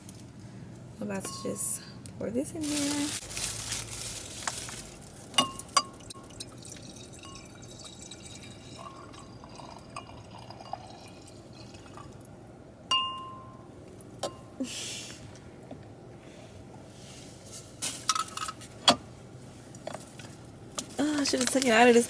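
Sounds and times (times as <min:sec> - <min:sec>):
wine glasses clinking: 0:01.2 - 0:01.7, 0:05.4 - 0:12.1, 0:12.9 - 0:13.6
wine being poured: 0:04.8 - 0:12.3.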